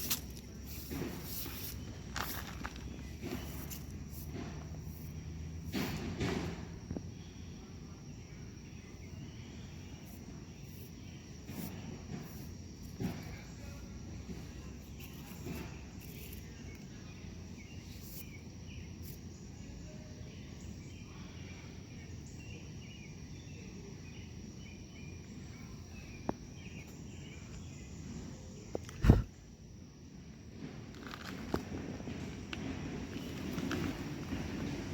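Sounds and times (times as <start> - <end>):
insects trilling: 0.0 - 34.9
faint chirps: 7.0 - 29.5.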